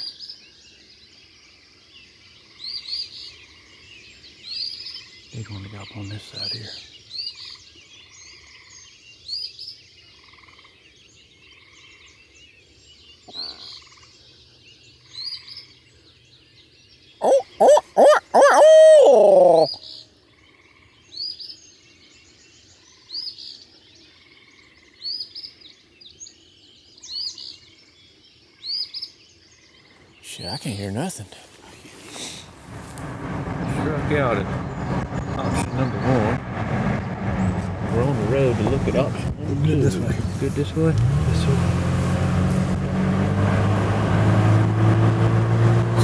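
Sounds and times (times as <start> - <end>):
owl call hoots: 17.2 - 19.8
songbird repeating high phrase: 17.2 - 19.8.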